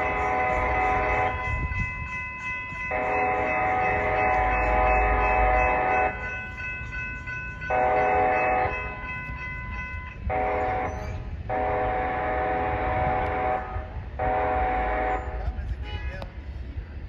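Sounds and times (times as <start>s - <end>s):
train air horn blasts: 0.0s - 1.8s, 2.9s - 6.2s, 7.7s - 8.8s, 10.2s - 10.9s, 11.5s - 16.3s
train rumbling: 0.0s - 17.0s.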